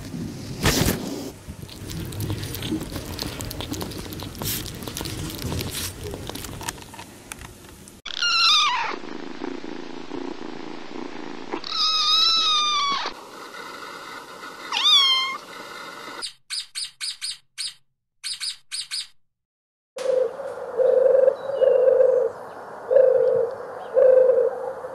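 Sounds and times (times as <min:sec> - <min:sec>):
kitten meowing: 0:08.1 - 0:09.0, 0:11.6 - 0:13.1, 0:14.7 - 0:15.4.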